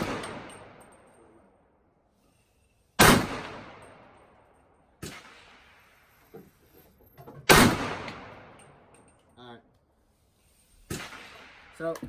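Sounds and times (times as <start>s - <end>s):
rifle shots echoing: 0.0s - 0.8s, 3.0s - 4.3s, 7.5s - 8.7s, 10.9s - 12.0s.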